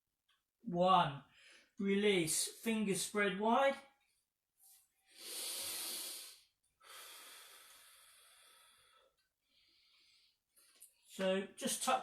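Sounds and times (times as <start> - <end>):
man breathing deeply: 5.0 - 10.8.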